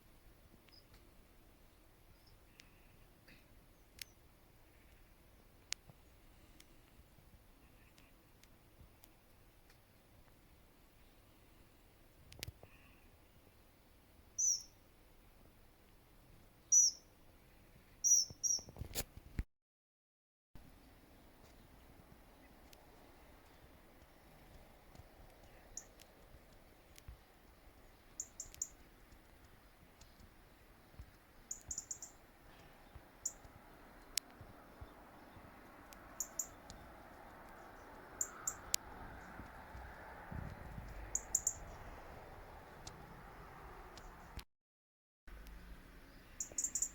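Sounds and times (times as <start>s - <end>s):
small birds chirping: 0.1s - 14.9s, 16.6s - 18.8s, 21.3s - 44.4s, 45.3s - 46.9s
small bird calling: 14.4s - 14.8s, 16.7s - 17.1s, 18.0s - 18.7s, 27.8s - 29.0s, 31.4s - 35.4s, 36.0s - 36.9s, 37.5s - 39.4s, 41.0s - 42.0s, 46.0s - 46.9s
sharp ticks: 28.1s - 30.3s, 35.6s - 39.9s.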